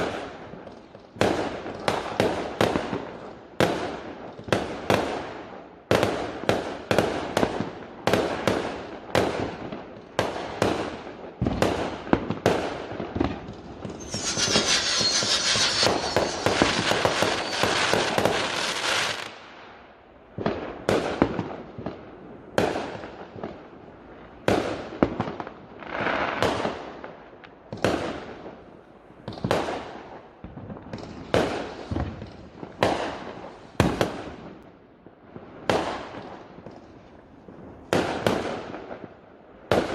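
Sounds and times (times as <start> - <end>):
firework bangs: 10.3 - 19.5
hissing crackle: 13.6 - 19.2.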